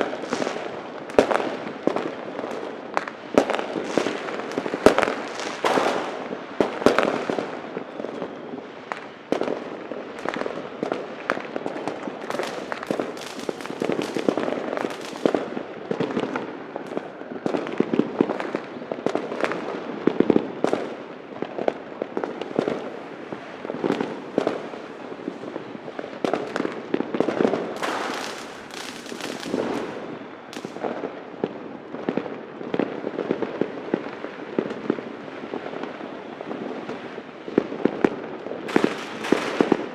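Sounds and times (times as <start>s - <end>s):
fireworks bangs and crackling: 0.0s - 39.9s
loud firework bangs: 3.4s - 7.6s, 11.6s - 17.6s, 26.2s - 31.2s, 38.7s - 39.9s.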